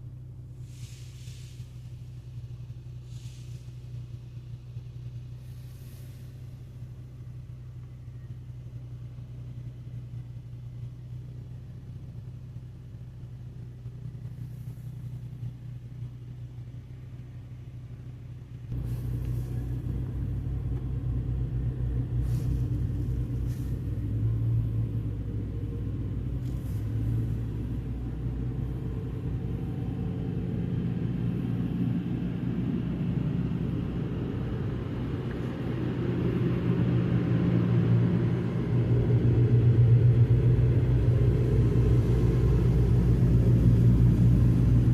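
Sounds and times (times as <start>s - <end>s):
car wash machinery rumble: 0.0s - 44.9s
low hum inside car: 0.0s - 44.9s
short hissing bursts: 0.6s - 2.4s, 3.0s - 4.1s, 5.4s - 6.6s.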